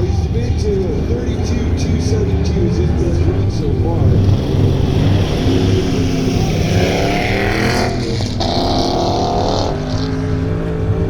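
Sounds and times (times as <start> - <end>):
truck engine revving hard: 1.4 - 11.0
vehicle passing whoosh: 3.5 - 10.5.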